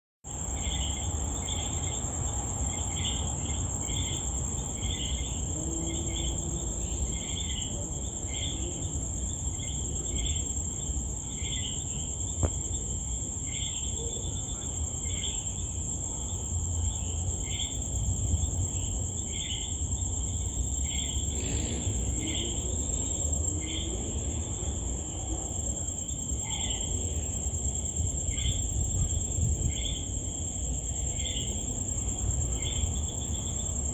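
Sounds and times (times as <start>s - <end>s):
insect lower chirps: 0.3s - 33.9s
insect high trill: 18.6s - 33.9s.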